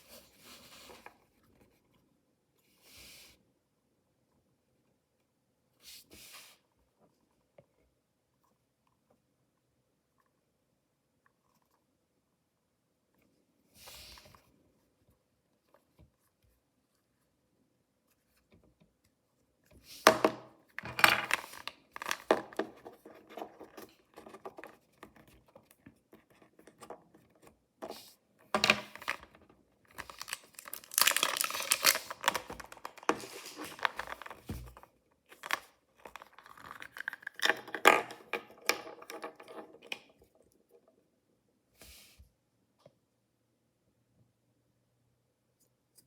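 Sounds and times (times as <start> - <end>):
packaging tearing and crinkling: 21.3 - 22.3, 30.0 - 34.5.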